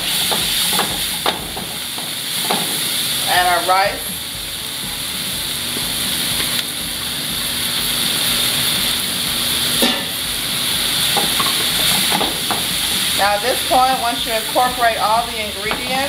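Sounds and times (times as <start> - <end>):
spatula stirring in skillet: 0.0 - 3.4, 7.4 - 16.0
vegetables and rice sizzling in oil: 0.0 - 16.0.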